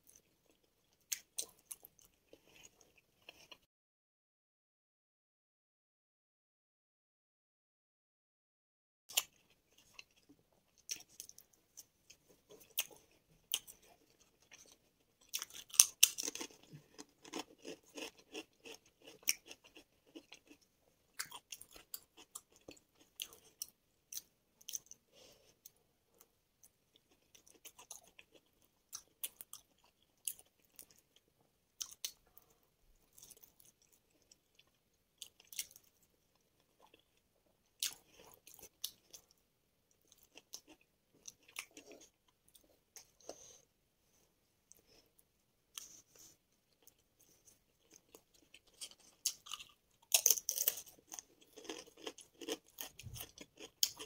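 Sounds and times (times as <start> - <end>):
chewing with wet mouth sounds: 9.1 - 31.2, 31.8 - 37.2, 37.8 - 43.6, 45.7 - 54.0.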